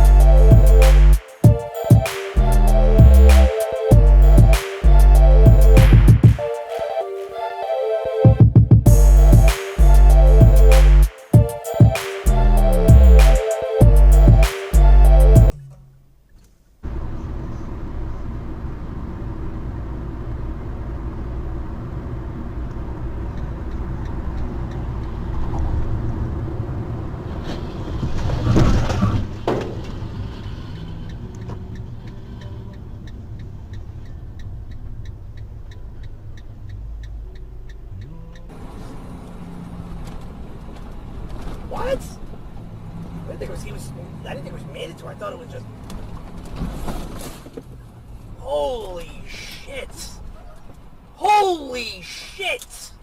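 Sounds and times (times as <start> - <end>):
car road and engine rumble: 16.9 - 48.5.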